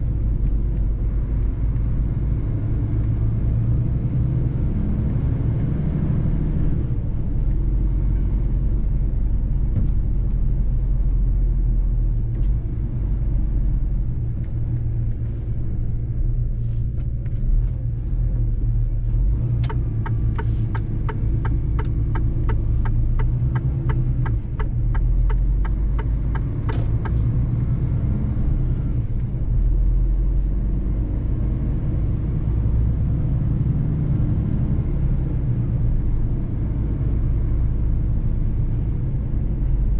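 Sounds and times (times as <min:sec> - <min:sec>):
truck engine and road rumble: 0:00.0 - 0:39.9
regular ticking: 0:19.6 - 0:27.2.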